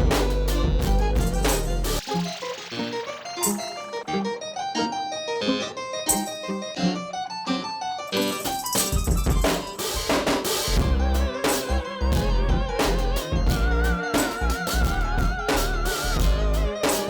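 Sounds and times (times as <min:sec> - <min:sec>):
drums and deep bass: 0:00.0 - 0:02.0, 0:09.0 - 0:17.0
light plucked melody: 0:03.0 - 0:17.0.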